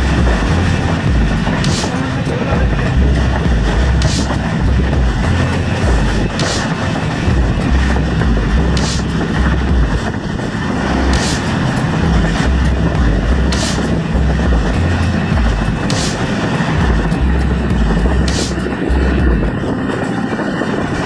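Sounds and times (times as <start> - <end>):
train rumbling on track: 0.0 - 21.0
hissing clatter: 5.2 - 17.2.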